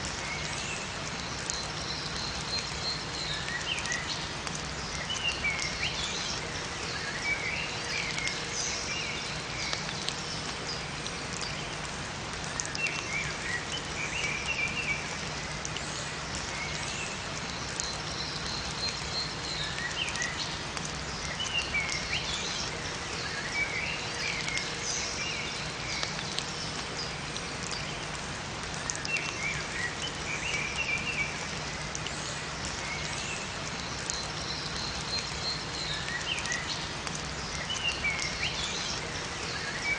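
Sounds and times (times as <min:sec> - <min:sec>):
rain falling in forest: 0:00.0 - 0:39.9
small birds chirping: 0:12.4 - 0:39.9.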